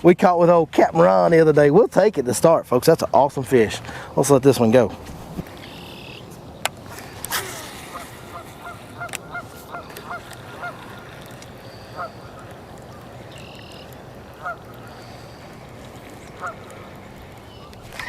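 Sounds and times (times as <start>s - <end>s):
geese honking: 7.8s - 18.0s.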